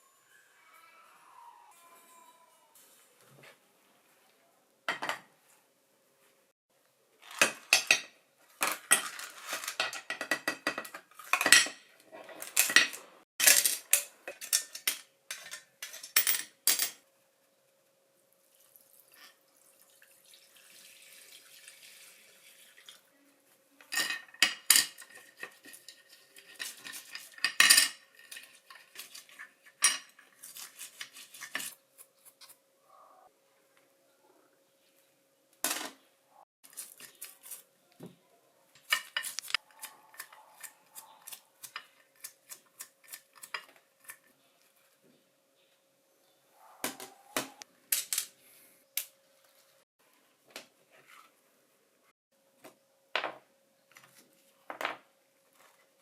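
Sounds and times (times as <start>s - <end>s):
metal parts and tools clinking: 12.4s - 17.0s, 38.8s - 39.7s.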